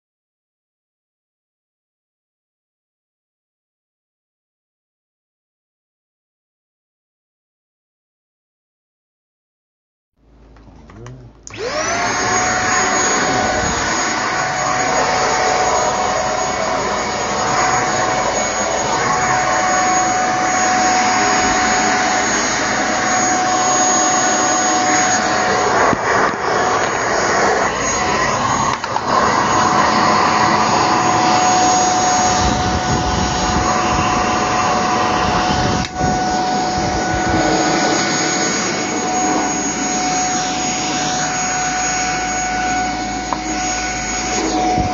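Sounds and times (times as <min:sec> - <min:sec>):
vacuum cleaner whine: 0:10.8 - 0:44.9.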